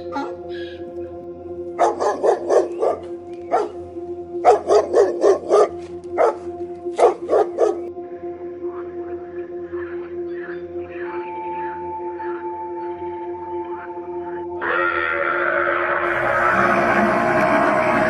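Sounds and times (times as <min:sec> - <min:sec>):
steady droning tone: 0:00.0 - 0:14.8, 0:16.0 - 0:18.0
dog barking: 0:01.8 - 0:03.8, 0:04.4 - 0:07.9.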